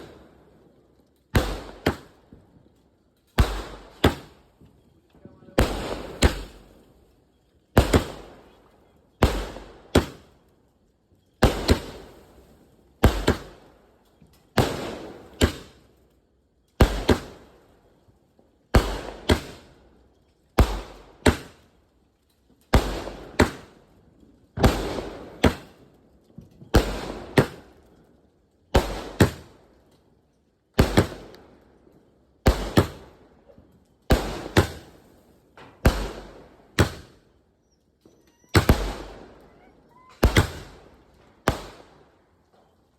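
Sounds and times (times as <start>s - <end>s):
firework bangs: 1.4s - 2.5s, 3.4s - 4.6s, 5.4s - 6.9s, 7.8s - 8.5s, 11.4s - 12.3s, 13.0s - 13.7s, 14.5s - 15.8s, 18.8s - 19.7s, 22.8s - 23.8s, 24.5s - 27.9s, 28.8s - 29.6s, 30.8s - 31.4s, 32.4s - 33.2s, 34.1s - 37.2s, 38.1s - 42.2s
firework crackling: 5.4s - 7.0s, 28.8s - 29.6s, 34.1s - 37.2s, 38.1s - 42.2s.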